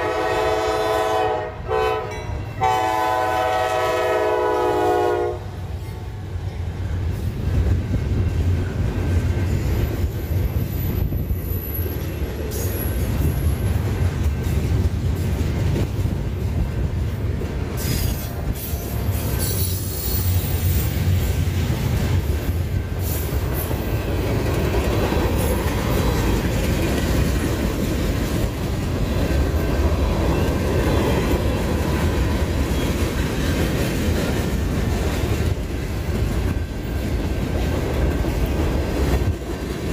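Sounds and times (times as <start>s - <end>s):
freight train rumbling on rails: 0.0s - 39.9s
high wheel squeal: 17.8s - 21.0s.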